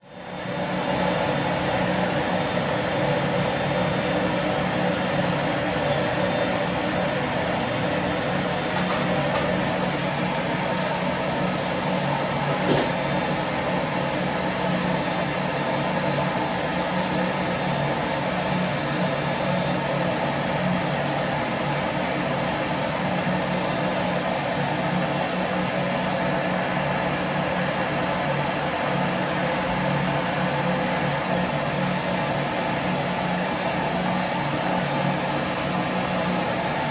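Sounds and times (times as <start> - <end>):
vacuum cleaner running: 0.4 - 24.2.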